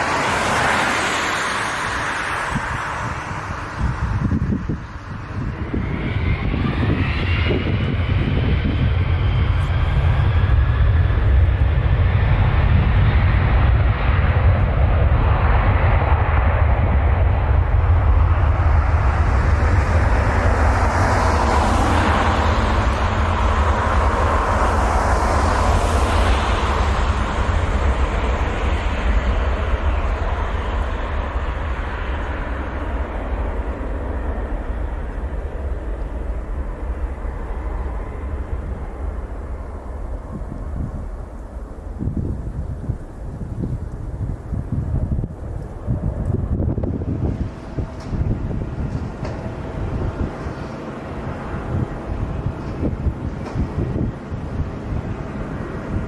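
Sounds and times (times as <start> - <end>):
jet engines rumbling: 0.0 - 56.0
broad hissing rush: 17.6 - 43.4.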